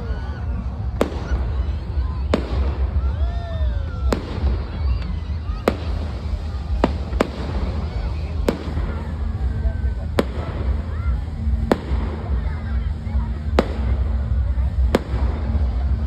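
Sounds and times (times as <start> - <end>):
fireworks bangs: 0.0 - 16.0
low rumble: 0.0 - 16.0.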